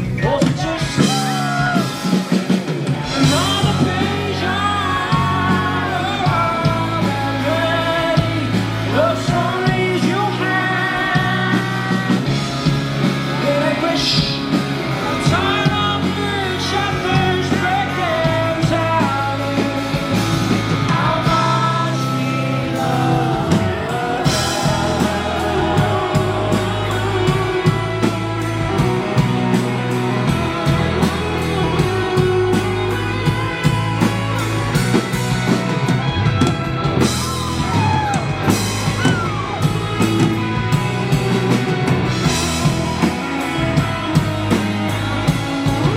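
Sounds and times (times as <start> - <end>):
rock band playing: 0.0 - 45.9
person singing: 0.2 - 2.2, 3.0 - 33.6.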